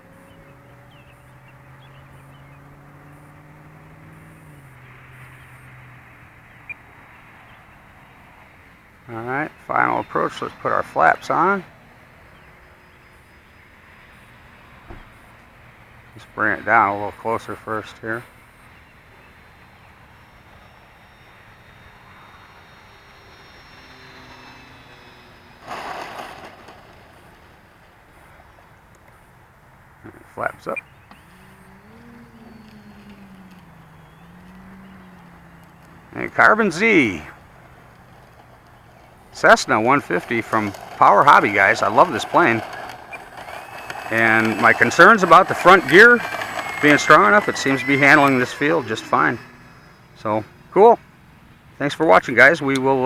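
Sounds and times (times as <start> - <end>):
model airplane motor humming: 0.0 - 5.7, 6.4 - 52.0
rush of noise: 21.6 - 28.6.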